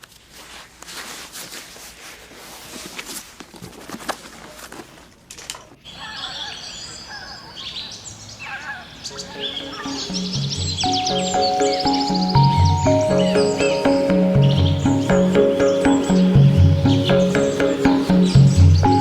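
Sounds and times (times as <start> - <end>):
birds chirping and singing: 5.9 - 19.0.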